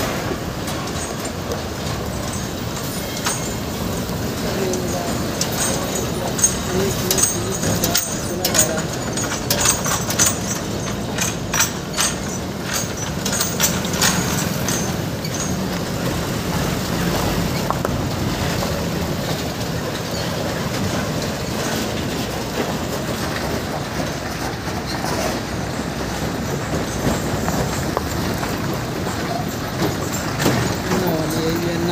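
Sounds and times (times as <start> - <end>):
truck engine and road noise: 0.0 - 31.9
sharp rattling clicks: 0.5 - 25.0.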